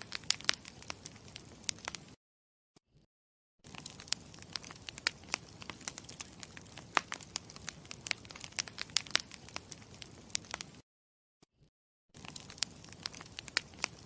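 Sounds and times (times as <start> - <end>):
campfire crackling: 0.0 - 2.2, 3.7 - 10.8, 12.2 - 14.0.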